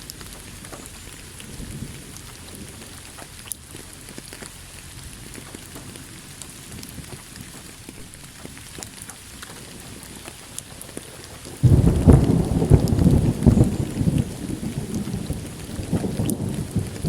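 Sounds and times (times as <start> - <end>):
rain pattering: 0.0 - 17.0
thunder clap rolling: 9.5 - 17.0.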